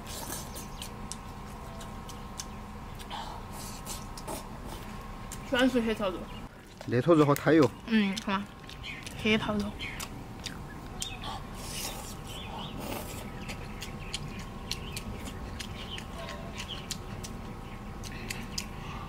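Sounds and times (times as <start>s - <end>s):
person chewing meat: 0.0s - 5.5s, 6.5s - 19.0s.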